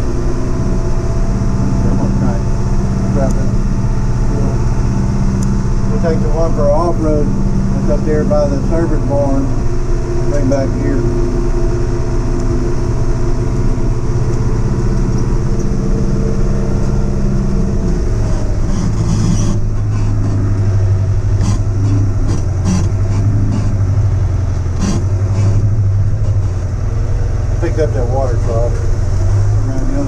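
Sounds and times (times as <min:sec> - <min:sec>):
diesel engine running under load: 0:00.0 - 0:30.0.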